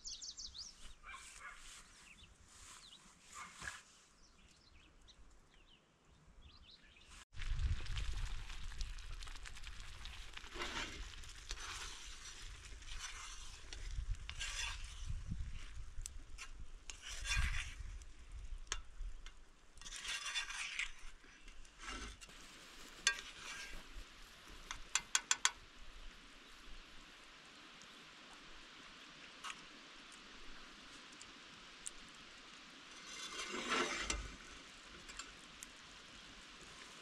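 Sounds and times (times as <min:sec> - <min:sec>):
utensil scraping a pan: 0:10.4 - 0:15.3, 0:16.4 - 0:18.0, 0:19.8 - 0:24.0, 0:33.0 - 0:34.5.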